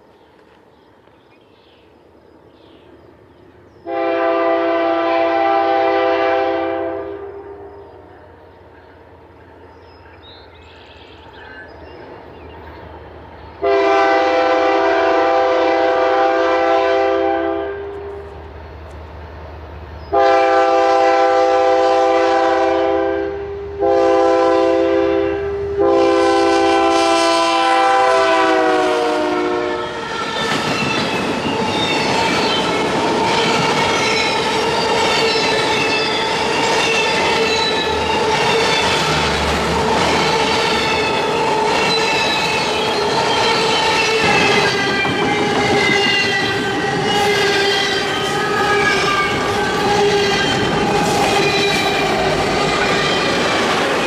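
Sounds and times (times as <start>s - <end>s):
locomotive air horn blasts: 3.9s - 7.7s, 13.6s - 18.3s, 20.1s - 30.4s, 43.5s - 53.1s
train wheels clattering: 30.0s - 54.0s.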